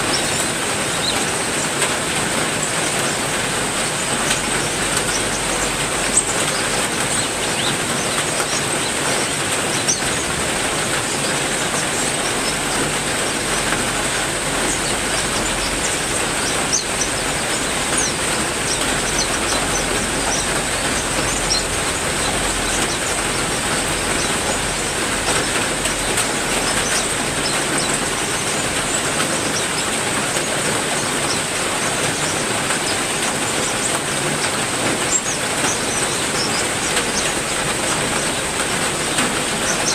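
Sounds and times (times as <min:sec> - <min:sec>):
high bird chirps: 0:00.0 - 0:01.4, 0:10.9 - 0:33.0
heavy rain falling: 0:00.0 - 0:39.9.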